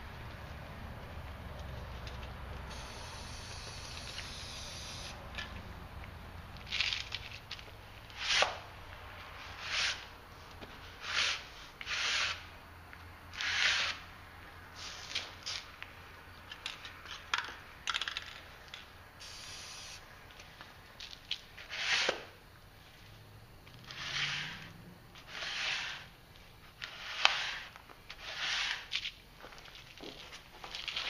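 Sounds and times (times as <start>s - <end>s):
spray can hissing bursts: 2.7s - 5.1s, 19.2s - 20.0s.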